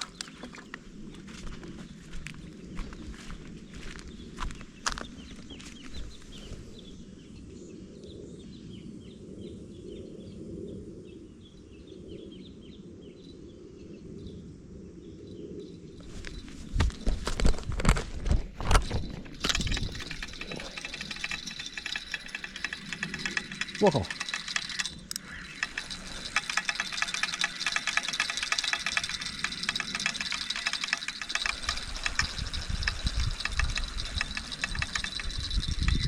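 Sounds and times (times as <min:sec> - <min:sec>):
birds chirping: 0:00.0 - 0:07.8, 0:18.8 - 0:36.0.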